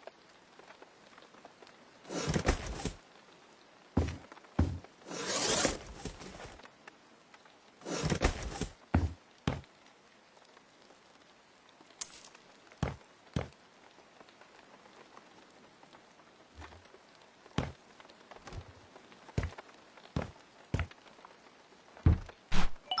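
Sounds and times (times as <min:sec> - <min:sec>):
handling knocks and clinks: 0:12.0 - 0:13.0.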